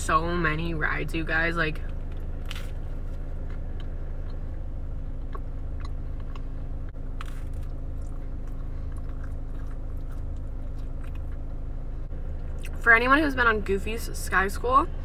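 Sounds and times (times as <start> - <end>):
low car hum: 0.0 - 15.0
crunchy toast chewing: 5.2 - 11.6.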